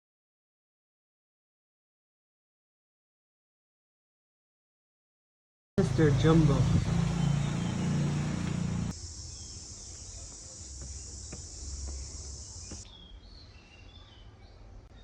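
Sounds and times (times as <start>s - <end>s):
vehicle engine running: 5.8s - 8.9s
high-pitched insect drone: 8.9s - 12.8s
faint bird chirps: 9.2s - 15.0s.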